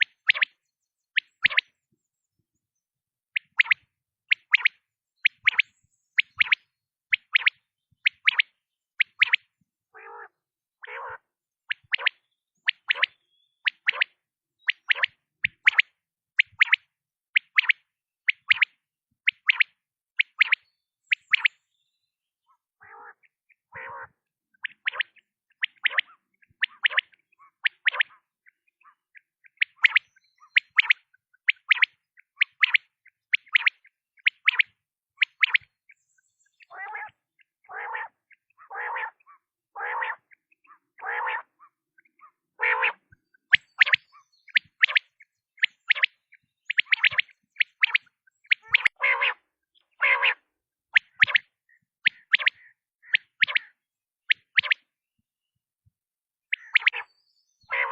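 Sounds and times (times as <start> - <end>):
quail short sharp high calls: 7.3 - 15.8, 22.5 - 32.8, 36.6 - 54.9, 56.5 - 57.1, 57.7 - 57.9
lower rougher bird calls: 7.9 - 15.6, 22.4 - 32.5, 35.2 - 54.9, 56.5 - 57.9.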